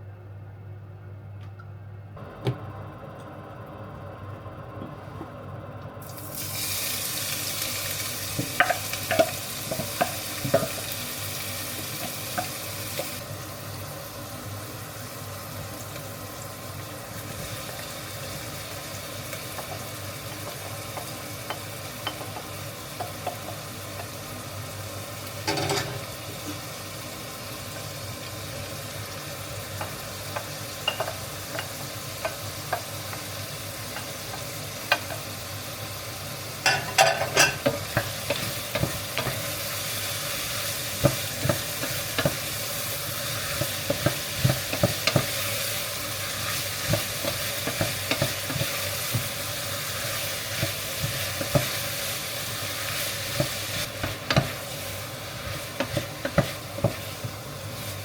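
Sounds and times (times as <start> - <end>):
food sizzling in a pot: 6.0 - 58.0.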